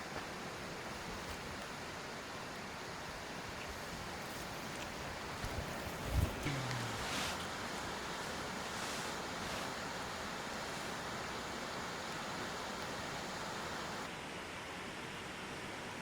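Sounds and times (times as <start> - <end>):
steady rain falling: 0.0 - 14.1.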